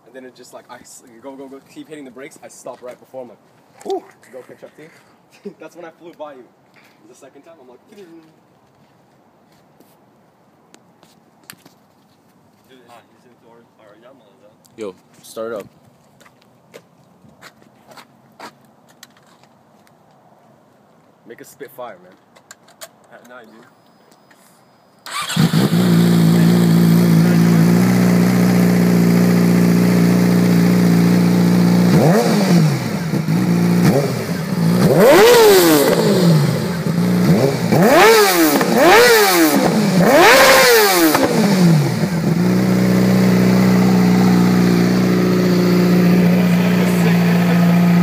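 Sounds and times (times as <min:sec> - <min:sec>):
motorcycle engine idling and revving: 0:25.1 - 0:48.0.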